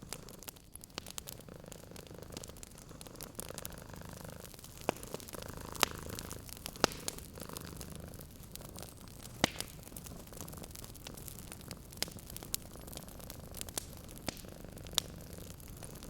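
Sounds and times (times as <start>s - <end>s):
cat purring: 0.0s - 16.0s
wood fire crackling and popping: 0.0s - 16.0s.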